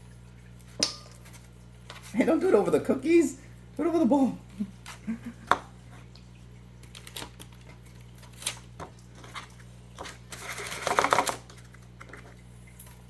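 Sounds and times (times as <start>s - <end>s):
low steady hum: 0.0s - 13.0s
kitchen clicks and taps: 0.8s - 1.2s, 5.4s - 5.7s.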